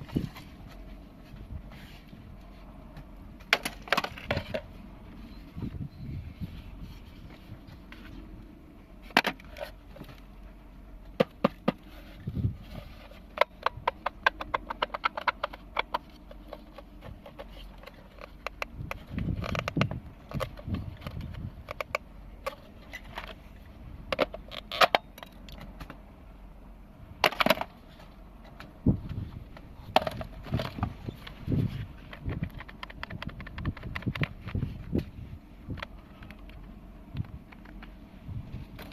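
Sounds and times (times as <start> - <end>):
hard objects clicking and knocking: 3.4 - 4.7, 13.0 - 23.4, 28.5 - 35.0.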